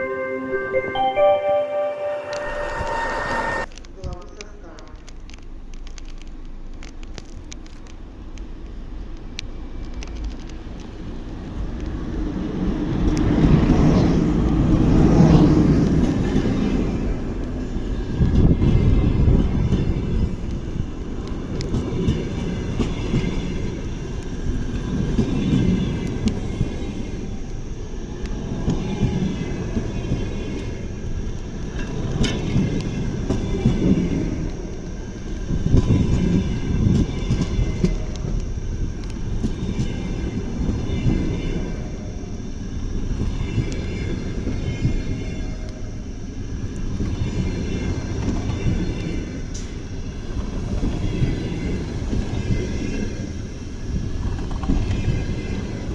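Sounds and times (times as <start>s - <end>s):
faint high whine: 0.0s - 4.4s
train wheels rumbling on rail: 2.6s - 55.9s.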